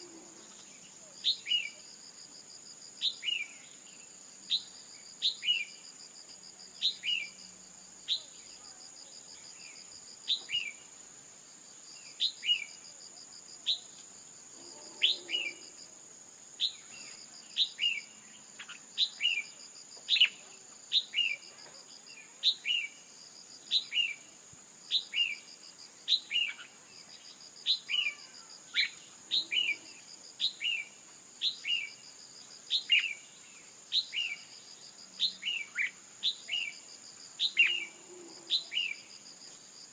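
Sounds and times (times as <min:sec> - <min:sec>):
high insect buzz: 0:00.0 - 0:39.9
pulsing insect trill: 0:13.8 - 0:19.8.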